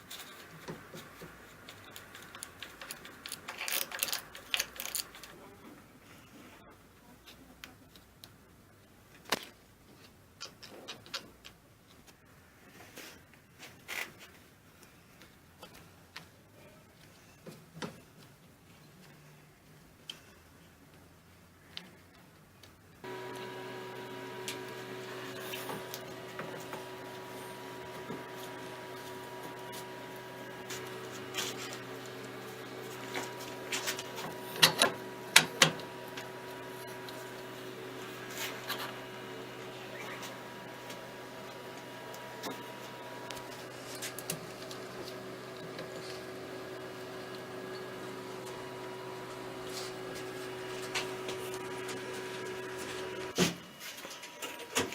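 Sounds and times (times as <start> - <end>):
tools and metal parts clicking: 1.6 - 5.4
steady electrical hum: 23.0 - 54.8.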